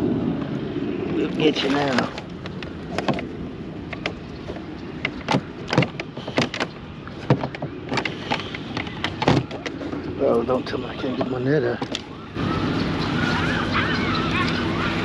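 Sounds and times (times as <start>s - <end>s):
low rumble: 0.0s - 4.8s
fishing gear knocking and clattering: 1.7s - 12.1s.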